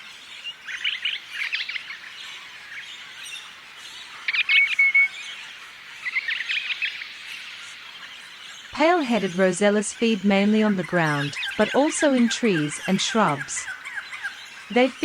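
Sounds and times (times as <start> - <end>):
parrots chattering: 9.0 - 15.0.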